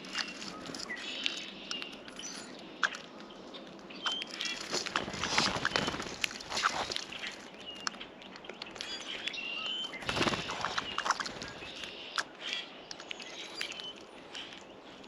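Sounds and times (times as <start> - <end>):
wing flutter and rustling: 0.0 - 2.5, 4.0 - 9.0, 9.8 - 12.1
small birds chirping: 0.0 - 15.0.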